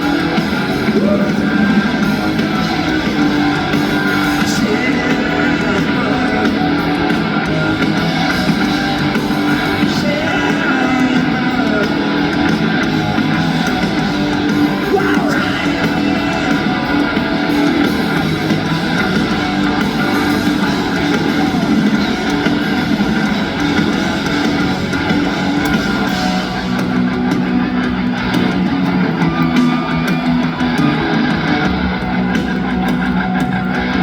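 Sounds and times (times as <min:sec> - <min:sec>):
live rock band playing: 0:00.0 - 0:34.0.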